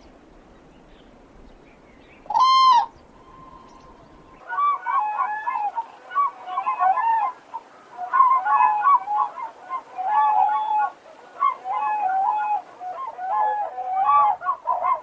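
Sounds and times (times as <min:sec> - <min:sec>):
cranes trumpeting: 0:02.3 - 0:05.8.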